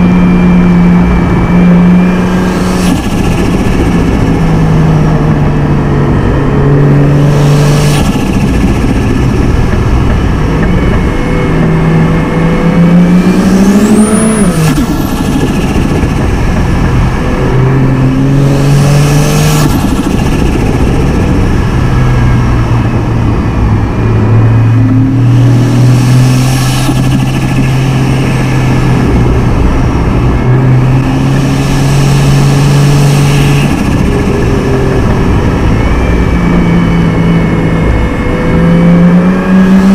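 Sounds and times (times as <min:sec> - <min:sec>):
car engine cruising: 0:00.0 - 0:39.9.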